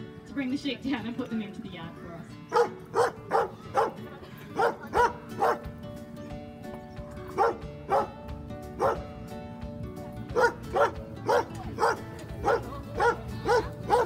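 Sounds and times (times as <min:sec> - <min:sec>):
dog barking: 0:02.5 - 0:04.0, 0:04.6 - 0:05.6, 0:07.3 - 0:08.2, 0:08.8 - 0:09.0, 0:10.3 - 0:14.0.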